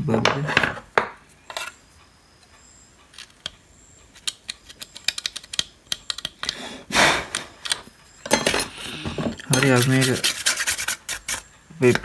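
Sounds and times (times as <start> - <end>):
light clicks and taps of tools: 3.2 - 6.6
scrubbing circuit board: 9.6 - 11.4.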